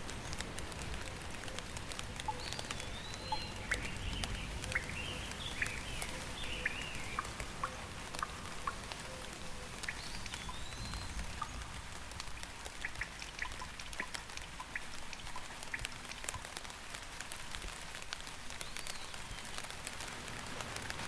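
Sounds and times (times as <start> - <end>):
bird chirping: 0.0 - 11.8
rain drops pattering: 0.0 - 21.0.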